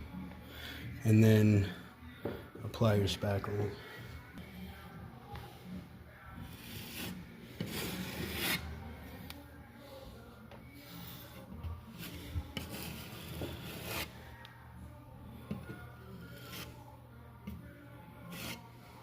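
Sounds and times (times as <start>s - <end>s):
scraper blade scraping drywall: 6.6s - 8.7s, 10.9s - 14.2s, 16.2s - 16.8s, 18.3s - 18.7s.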